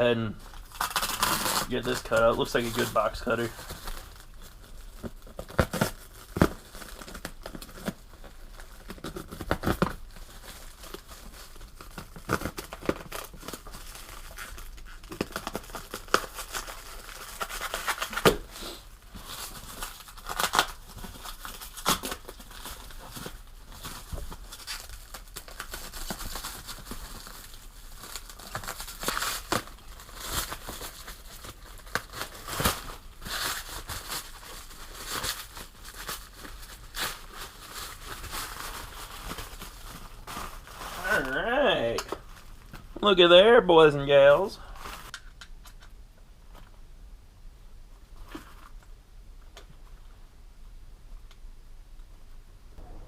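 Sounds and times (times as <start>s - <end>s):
packaging torn and crumpled: 0.4s - 42.9s.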